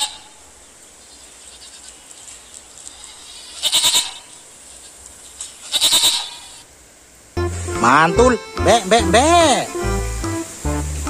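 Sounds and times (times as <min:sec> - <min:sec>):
goat kids bleating: 0:01.4 - 0:02.2, 0:02.8 - 0:06.6.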